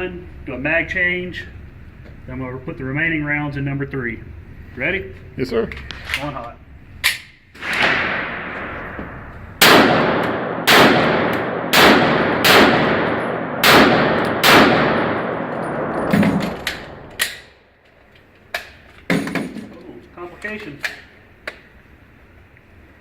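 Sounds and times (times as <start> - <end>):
pistol shots echoing: 7.6 - 17.6.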